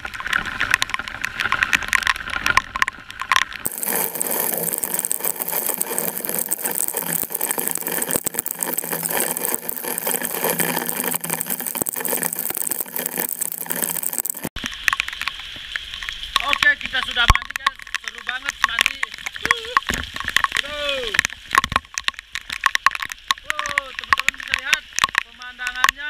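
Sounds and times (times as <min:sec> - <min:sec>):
raindrops hitting microphone: 0:00.0 - 0:26.0
heavy rain: 0:03.1 - 0:17.2.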